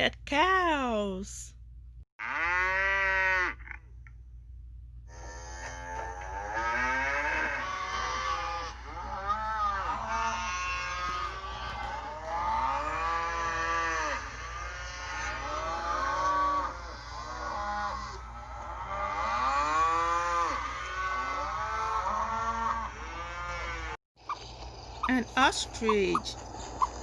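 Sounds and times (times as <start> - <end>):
cattle mooing: 2.2 - 3.8, 5.1 - 24.0.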